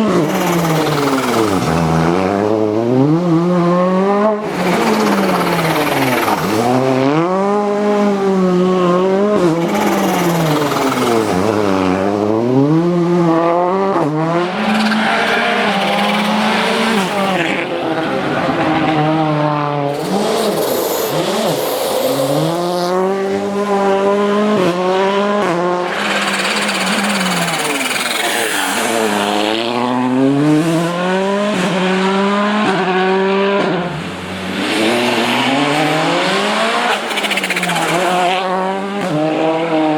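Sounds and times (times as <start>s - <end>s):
rally car engine accelerating: 0.0s - 39.9s
hissing tyre noise: 4.4s - 12.7s, 14.5s - 23.1s, 25.8s - 32.2s, 33.8s - 39.9s.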